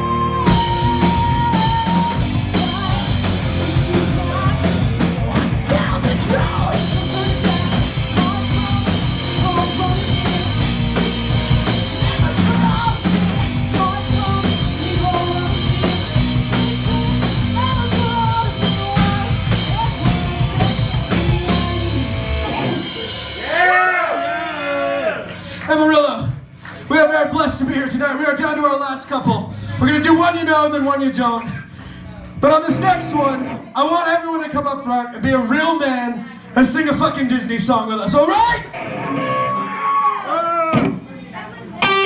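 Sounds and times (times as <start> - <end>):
metal band playing live: 0.0 - 24.0, 38.7 - 39.8, 41.8 - 42.0
drum kit: 0.0 - 24.3.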